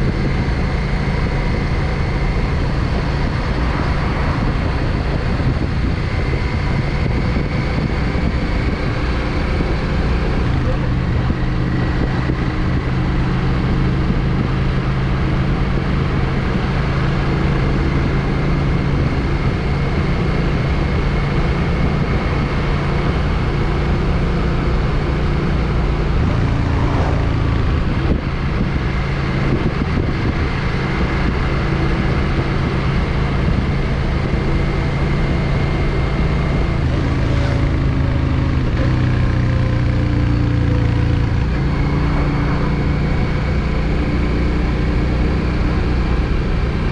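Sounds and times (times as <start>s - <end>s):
motorcycle engine cruising: 0.0s - 46.9s
wind and road noise: 0.0s - 46.9s.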